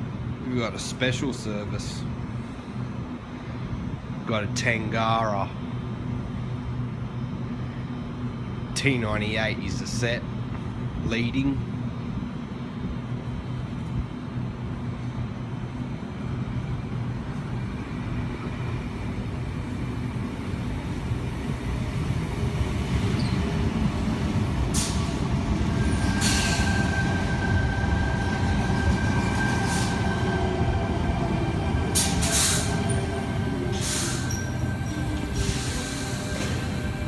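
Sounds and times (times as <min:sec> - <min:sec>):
electric train passing: 0:11.7 - 0:37.0.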